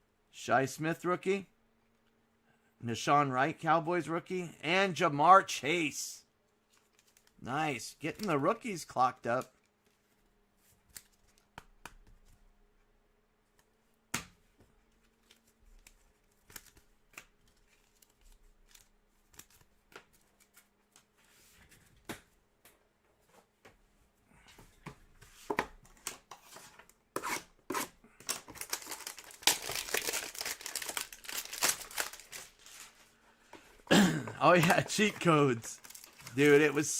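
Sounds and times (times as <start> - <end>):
wrapper crinkling and tearing: 28.2 - 33.1, 34.5 - 36.9.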